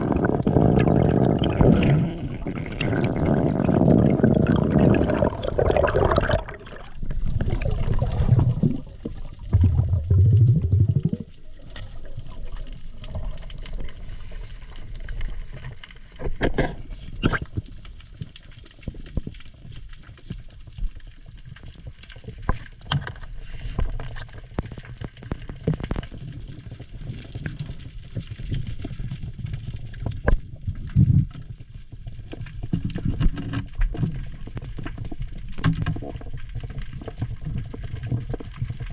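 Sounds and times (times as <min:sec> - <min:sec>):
water washing: 0:00.0 - 0:13.5
water gurgling and sloshing: 0:00.0 - 0:38.9.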